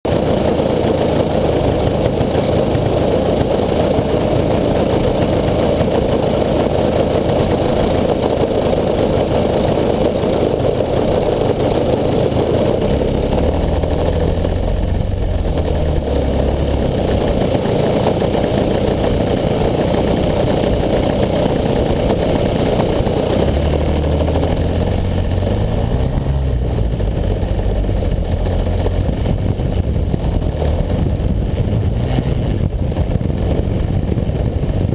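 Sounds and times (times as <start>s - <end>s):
model plane engine running: 0.1s - 34.9s.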